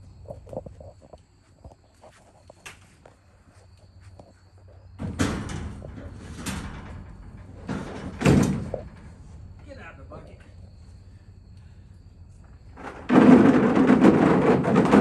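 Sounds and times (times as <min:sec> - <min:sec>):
loud rattling and banging knocks: 0:05.0 - 0:10.0, 0:12.6 - 0:15.0
faint clicks: 0:11.5 - 0:11.7.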